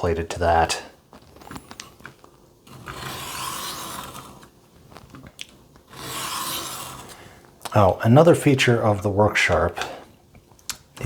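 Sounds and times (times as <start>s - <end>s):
knife rasping on sharpening plate: 2.7s - 4.4s, 5.9s - 7.2s.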